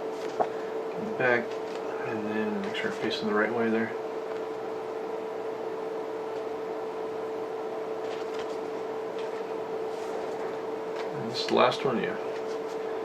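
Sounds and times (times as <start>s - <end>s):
soft handling noises: 0.0s - 2.9s, 7.9s - 13.0s
appliance hum with hiss: 0.0s - 13.0s.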